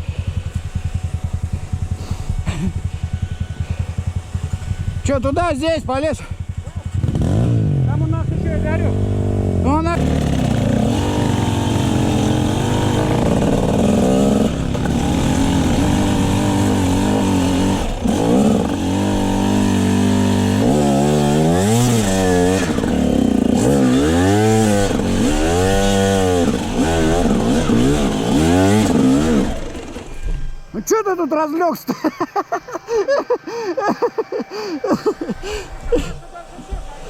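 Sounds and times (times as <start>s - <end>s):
motorcycle engine revving: 0.0s - 30.8s.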